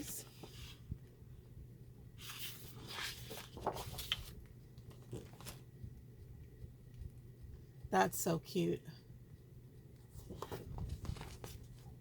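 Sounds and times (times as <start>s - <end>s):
paper rustling and sliding: 0.0s - 0.9s, 2.2s - 5.6s, 10.2s - 11.9s.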